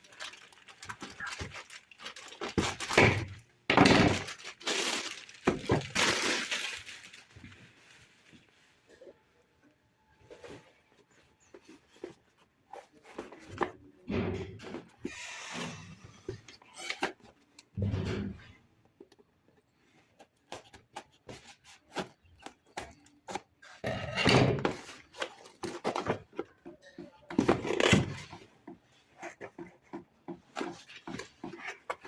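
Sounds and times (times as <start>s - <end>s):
packaging rustling: 0.0s - 3.0s, 4.0s - 8.3s.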